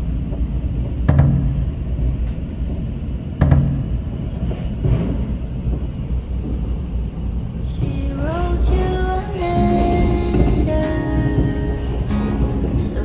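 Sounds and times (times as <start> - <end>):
low rumbling noise: 0.0 - 13.0
music: 8.3 - 13.0.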